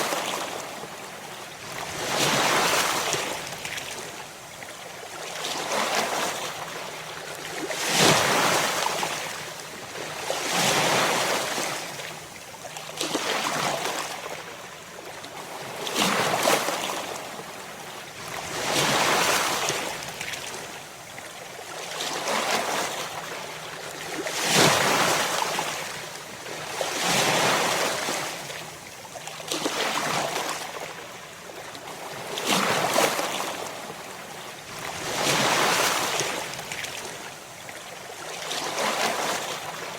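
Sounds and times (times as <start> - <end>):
ocean waves breaking on shore: 0.0 - 21.0, 21.7 - 28.8, 29.4 - 39.9.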